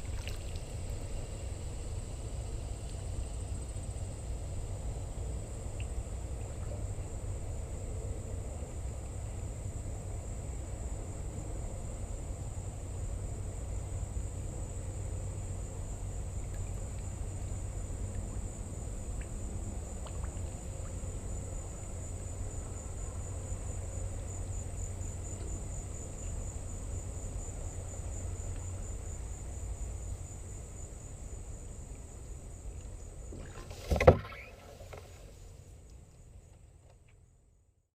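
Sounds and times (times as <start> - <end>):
insect buzz: 13.5 - 35.8.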